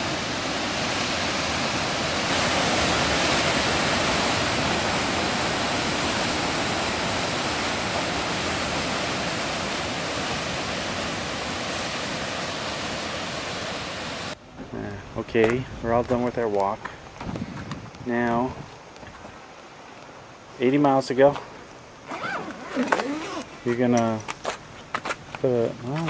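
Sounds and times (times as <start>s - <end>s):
waterfall roaring: 0.0s - 14.9s.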